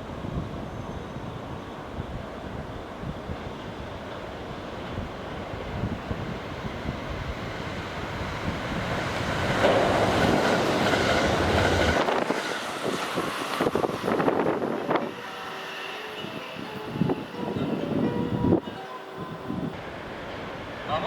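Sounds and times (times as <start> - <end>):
train rushing past: 0.0 - 21.0
wheel clacks over rail joints: 8.9 - 15.2.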